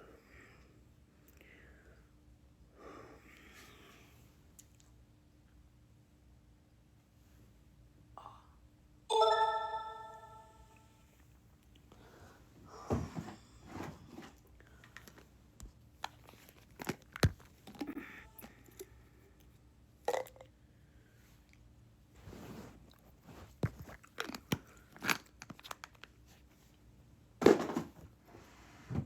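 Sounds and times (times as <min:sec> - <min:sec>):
bright ringing tone: 0:09.1 - 0:11.0
crunching rustling handling noises: 0:14.1 - 0:17.9.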